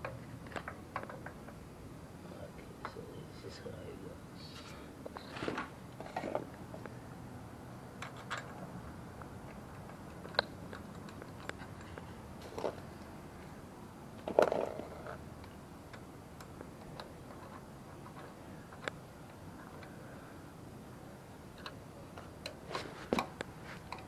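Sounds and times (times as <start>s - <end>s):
tools and metal parts clicking: 8.0s - 8.6s.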